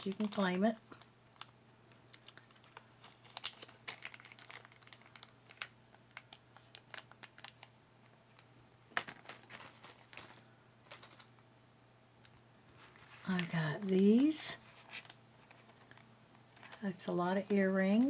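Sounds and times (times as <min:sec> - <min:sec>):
packaging crinkling: 0:00.0 - 0:11.4, 0:12.2 - 0:18.0.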